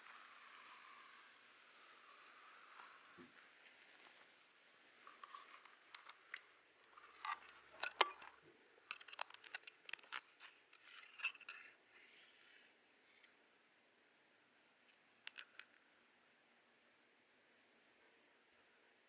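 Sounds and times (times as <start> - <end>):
light clicks and taps of tools: 7.2 - 11.7, 14.9 - 15.8.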